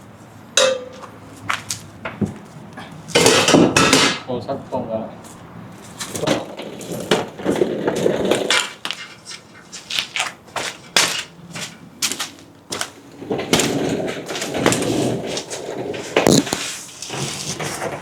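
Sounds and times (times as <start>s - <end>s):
metal exhaust parts clanking: 0.5s - 4.5s
hand tools knocking: 0.6s - 1.2s.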